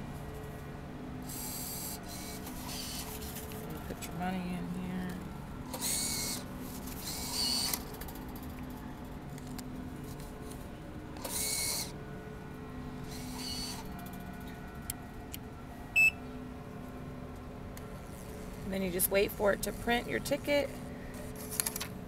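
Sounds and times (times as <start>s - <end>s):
low steady hum: 0.0s - 22.0s
mechanical whirring: 1.2s - 3.7s, 5.1s - 9.6s, 11.2s - 12.0s, 13.0s - 15.0s, 17.8s - 20.5s.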